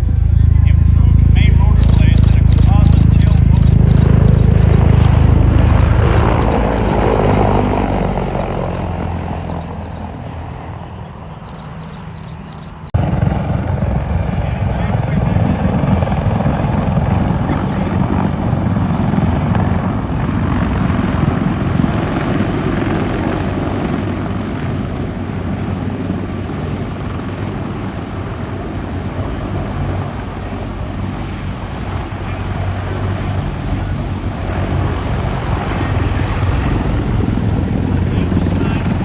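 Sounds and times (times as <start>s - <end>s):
helicopter flying by: 0.0s - 39.0s.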